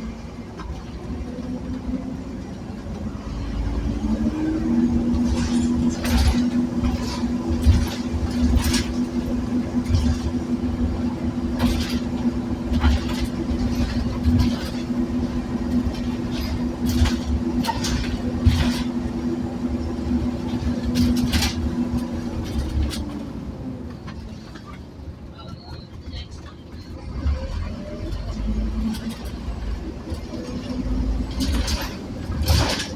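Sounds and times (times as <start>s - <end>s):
bus diesel engine running: 0.0s - 32.9s
knocks and rattles: 4.8s - 23.2s, 30.1s - 32.9s.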